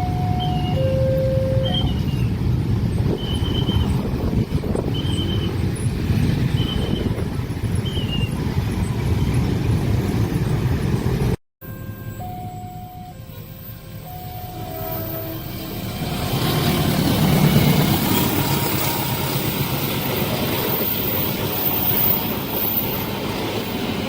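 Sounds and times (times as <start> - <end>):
crossing warning signal tones: 0.0 - 8.4, 11.6 - 22.0
train wheels rumbling on rails: 0.0 - 11.4, 13.4 - 24.0.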